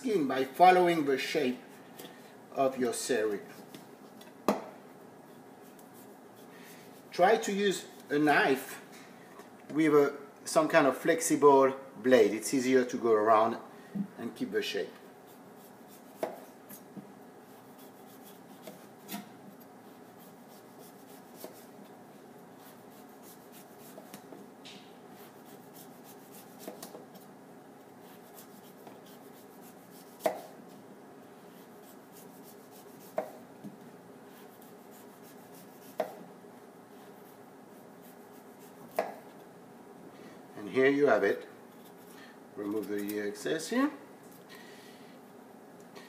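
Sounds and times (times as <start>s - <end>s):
knife cutting vegetable skin: 15.3s - 16.9s, 17.5s - 21.7s, 22.6s - 24.2s, 25.2s - 27.0s, 28.0s - 30.6s, 31.6s - 33.4s, 34.4s - 36.2s, 37.7s - 39.2s.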